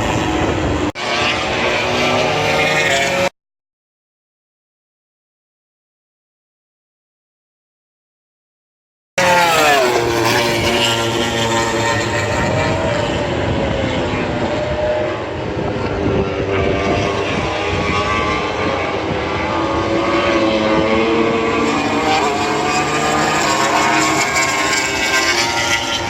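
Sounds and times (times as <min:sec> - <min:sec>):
race motorcycles passing at speed: 0:00.0 - 0:03.3, 0:09.2 - 0:26.0.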